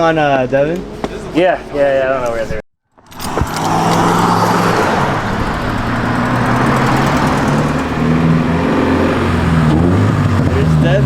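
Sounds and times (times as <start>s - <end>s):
road noise: 0.0s - 11.0s
car engine droning: 3.0s - 11.0s.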